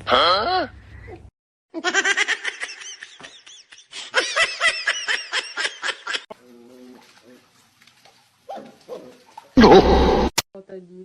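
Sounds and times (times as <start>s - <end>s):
person laughing hard: 9.6s - 10.0s.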